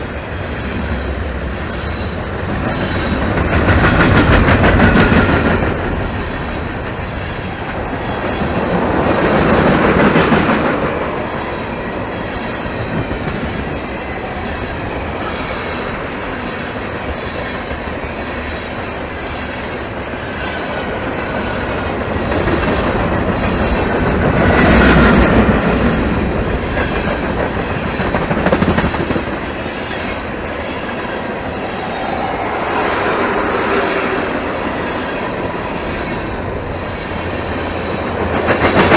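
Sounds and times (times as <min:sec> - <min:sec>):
train wheels clicking over rail joints: 0:00.0 - 0:11.1, 0:22.2 - 0:30.6, 0:37.0 - 0:38.9
freight train rumble: 0:00.0 - 0:38.9
wheels squealing against rail: 0:00.0 - 0:38.9.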